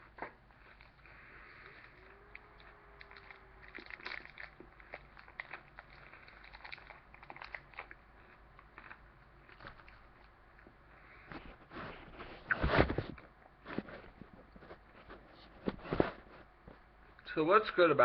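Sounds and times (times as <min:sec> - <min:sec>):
person chewing crunchy candy: 0:00.0 - 0:11.4.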